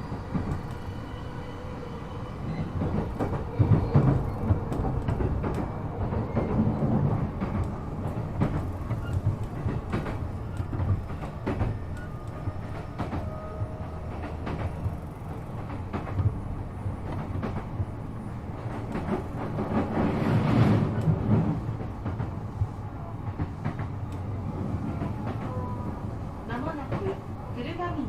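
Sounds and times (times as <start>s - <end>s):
train wheels rumbling on track: 0.0s - 28.0s
clacks over rail joints: 2.6s - 24.2s.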